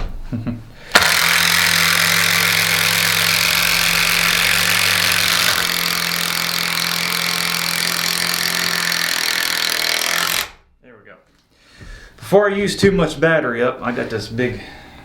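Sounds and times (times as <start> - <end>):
impact driver driving screw into wood: 0.9 - 10.6.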